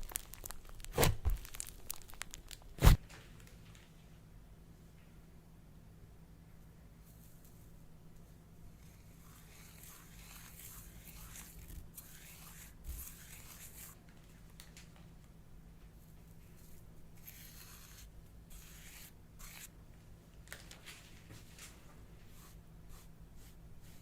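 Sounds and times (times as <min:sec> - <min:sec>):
slime crackling and tearing: 0:00.0 - 0:03.0.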